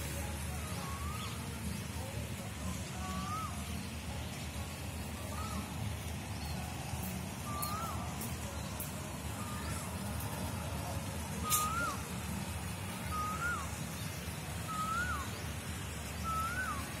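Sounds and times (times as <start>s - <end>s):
bird whistled call: 0.2s - 2.1s, 2.9s - 4.0s, 5.0s - 6.5s, 7.4s - 8.6s, 11.3s - 15.5s, 16.1s - 17.0s.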